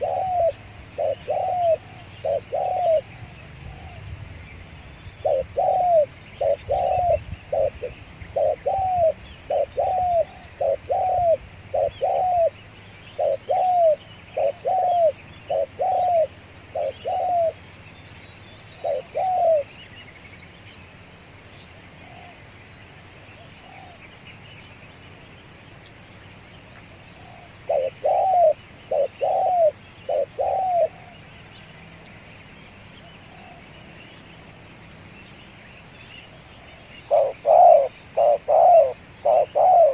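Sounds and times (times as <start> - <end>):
dove cooing: 0.0 - 4.1, 5.2 - 17.6, 18.8 - 19.7, 22.0 - 22.4, 23.6 - 24.0, 27.1 - 31.2, 33.1 - 33.8, 36.7 - 39.9.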